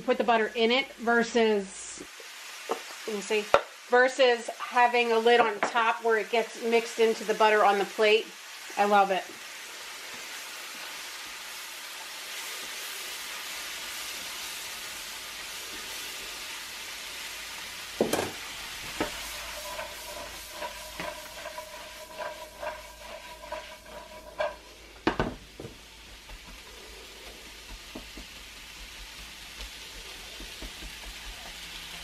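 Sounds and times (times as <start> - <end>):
mushrooms and onions sizzling: 0.0 - 32.0
spatula scraping and clicking: 18.8 - 24.8.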